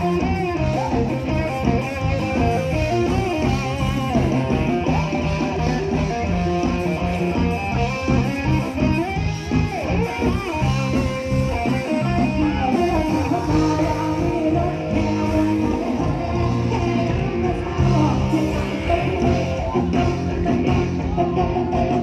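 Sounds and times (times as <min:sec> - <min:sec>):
live band playing: 0:00.0 - 0:22.0
person singing: 0:12.0 - 0:22.0.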